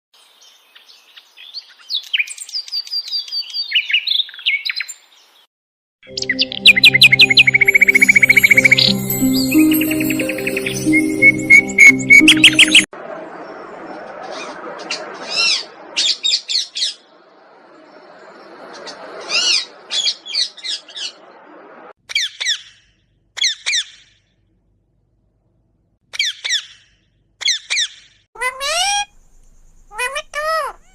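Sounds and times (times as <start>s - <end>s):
music: 6.1s - 12.9s
parrot chirping calls: 27.4s - 30.9s.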